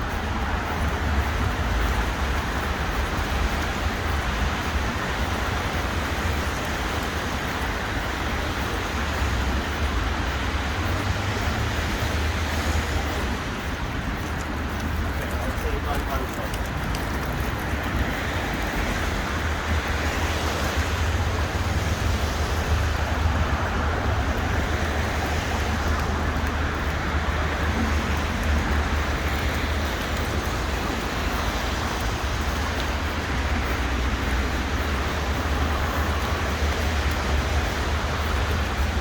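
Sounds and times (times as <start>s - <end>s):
road traffic rumble: 0.0s - 39.0s.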